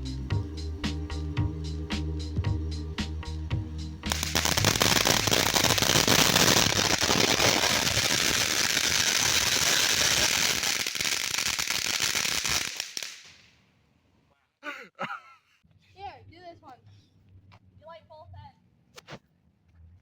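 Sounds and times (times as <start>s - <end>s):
firework hiss: 4.1s - 13.5s
firework crackling: 4.1s - 13.6s.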